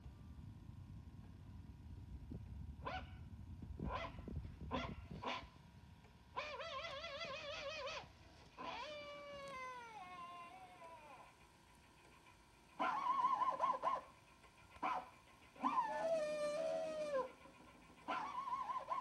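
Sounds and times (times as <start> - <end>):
cartoon dog howling: 6.4 - 11.4, 12.8 - 14.1, 15.6 - 19.0
cartoon dog barking: 8.6 - 9.0, 12.8 - 14.1, 14.8 - 17.4, 18.0 - 19.0.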